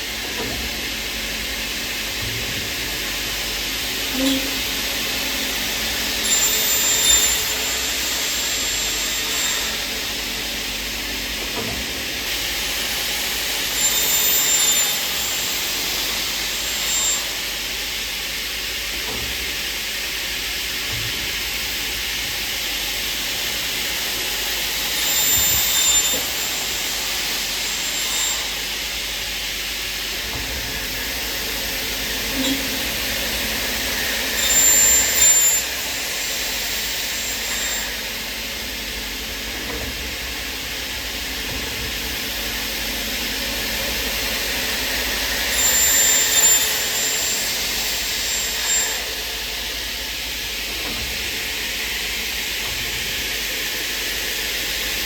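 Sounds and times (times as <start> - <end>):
high-pitched machine cutting: 3.3 - 10.6, 12.2 - 20.0, 22.5 - 38.7, 42.2 - 50.9.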